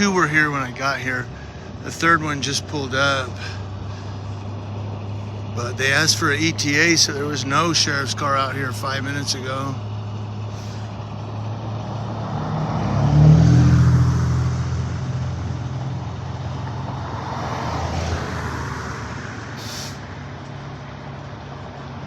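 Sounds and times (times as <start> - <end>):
heavy vehicle engine running: 0.0 - 22.0
short hiss: 19.6 - 20.0.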